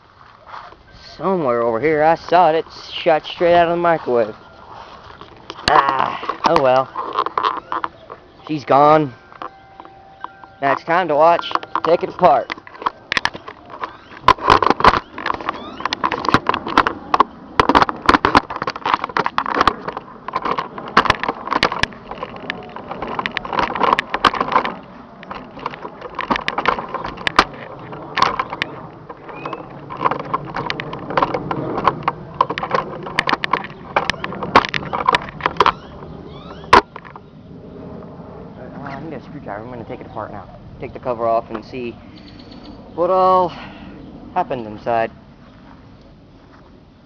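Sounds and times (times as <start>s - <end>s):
objects knocking and clattering: 9.4s - 35.8s.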